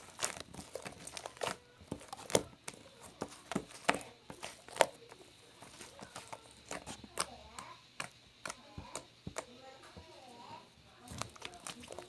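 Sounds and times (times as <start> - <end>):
small hard objects tapping: 0.0 - 10.2, 11.0 - 12.0.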